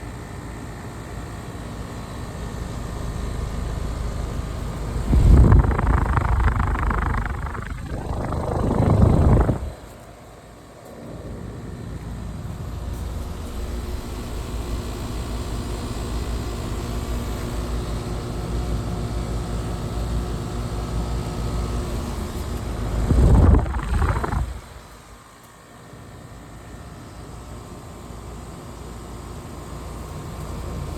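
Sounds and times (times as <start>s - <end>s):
compressor and fan hum: 0.0s - 30.9s
rush of fan air: 4.5s - 10.1s, 22.1s - 25.2s.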